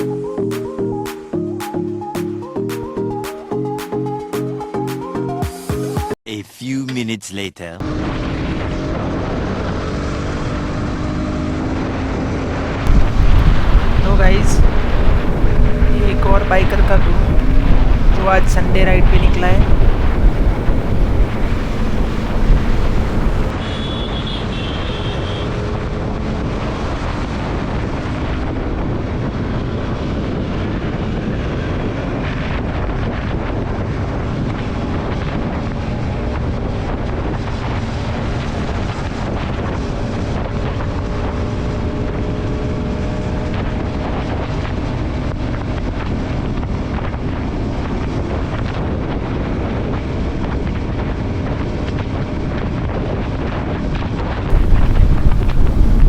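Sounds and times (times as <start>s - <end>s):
wind rushing over microphone: 12.8s - 23.5s, 25.7s - 56.0s
motorcycle engine hum: 12.9s - 23.5s, 54.5s - 56.0s.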